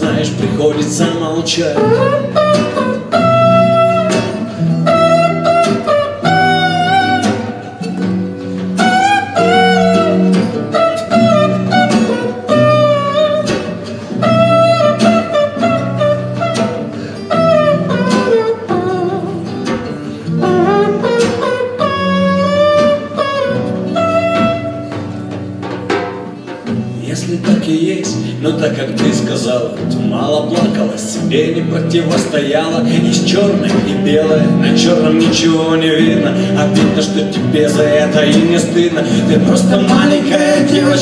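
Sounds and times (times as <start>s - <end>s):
acoustic guitar chords: 0.0s - 41.0s
melodic lead line with vibrato: 1.5s - 25.6s.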